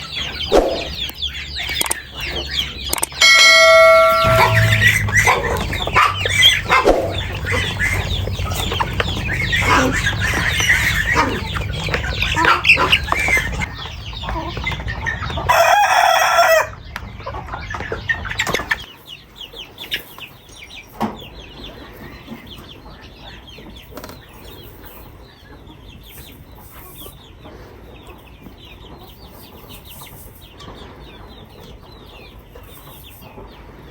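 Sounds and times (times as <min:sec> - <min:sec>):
chickens clucking: 0:00.0 - 0:33.9
rooster crowing: 0:03.2 - 0:08.2, 0:15.5 - 0:16.8.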